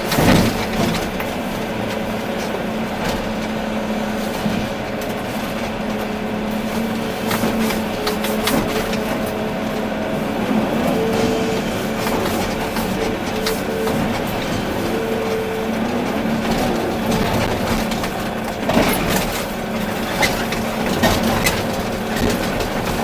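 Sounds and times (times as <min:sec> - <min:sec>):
clanks and knocks: 0:00.0 - 0:01.3, 0:11.0 - 0:23.0
excavator engine and hydraulics: 0:00.0 - 0:23.0.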